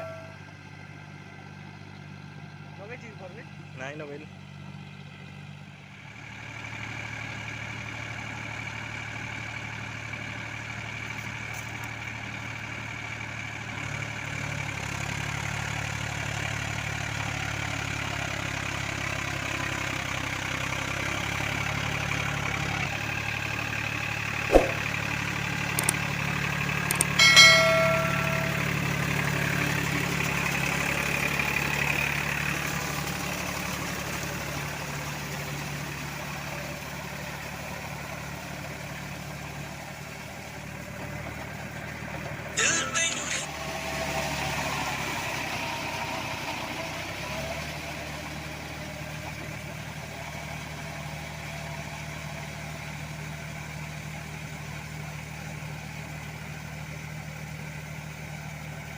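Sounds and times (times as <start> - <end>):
tractor diesel engine running: 0.0 - 58.9
sharp knock: 24.5 - 24.8
metallic clank with ringing: 26.9 - 29.1.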